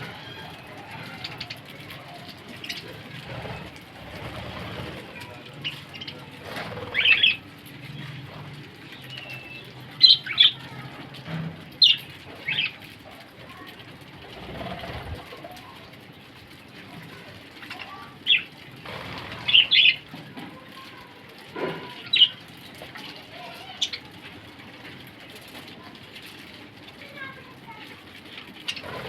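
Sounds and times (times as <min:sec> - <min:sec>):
parrots chirping: 0:00.0 - 0:10.8, 0:11.8 - 0:12.8, 0:17.8 - 0:20.1, 0:28.6 - 0:29.0.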